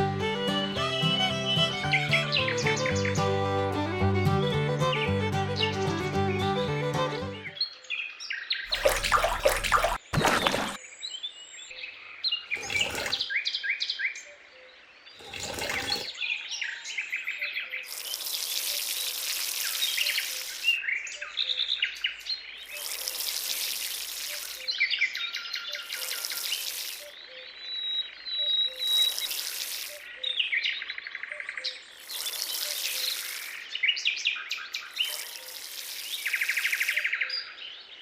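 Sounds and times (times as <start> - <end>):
small birds chirping: 0.6 - 3.4, 10.8 - 38.0
loud rough noises: 12.5 - 13.2, 15.2 - 16.1
hissing noise bursts: 35.1 - 37.0.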